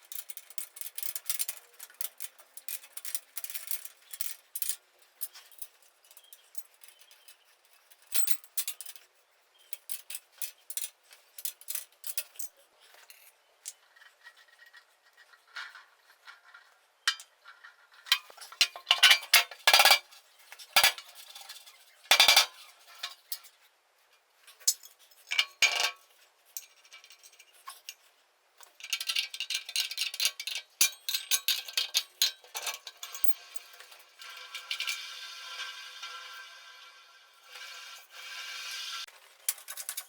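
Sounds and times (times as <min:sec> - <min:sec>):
metal tools clinking: 0:18.1 - 0:23.5, 0:28.8 - 0:35.0
metal scraping: 0:32.6 - 0:39.1.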